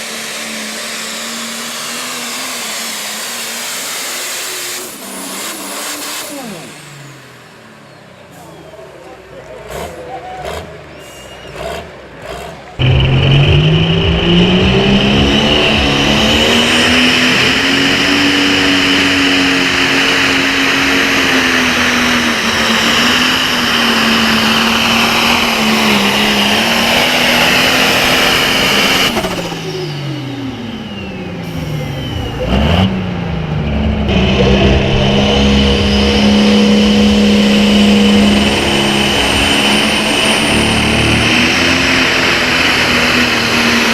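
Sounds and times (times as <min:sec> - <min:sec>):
tractor diesel engine at high revs: 0:00.0 - 0:43.9.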